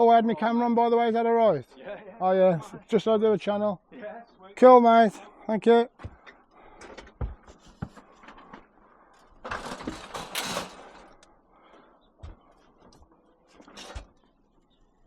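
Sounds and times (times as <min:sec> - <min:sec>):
scrap clattering scrape: 0:09.5 - 0:11.2.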